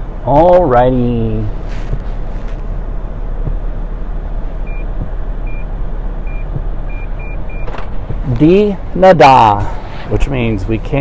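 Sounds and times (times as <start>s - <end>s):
parking sensor beeping: 4.6s - 7.8s.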